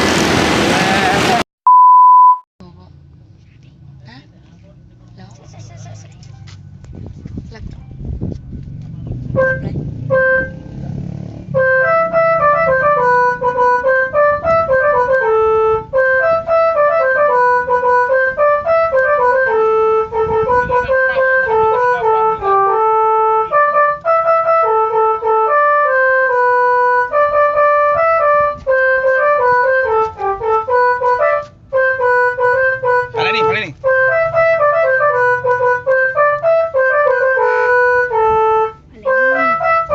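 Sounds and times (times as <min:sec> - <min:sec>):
multi-tone bus horn melody: 0:09.2 - 0:39.9.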